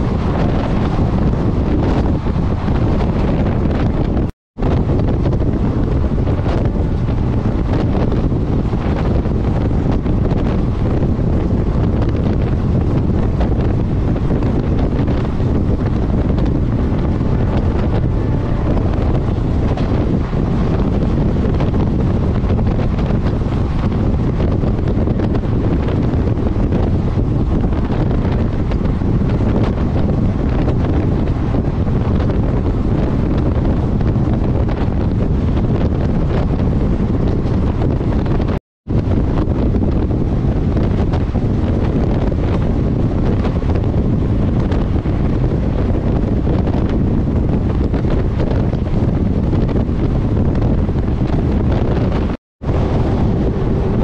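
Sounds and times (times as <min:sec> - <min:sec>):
passenger train running: 0:00.0 - 0:03.7, 0:13.2 - 0:24.4, 0:31.2 - 0:31.9
wind buffeting microphone: 0:00.0 - 0:54.0.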